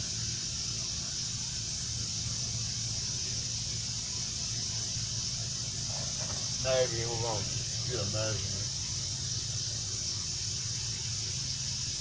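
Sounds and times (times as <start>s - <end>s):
high-pitched hiss: 0.0s - 12.0s
low hum: 5.5s - 10.0s.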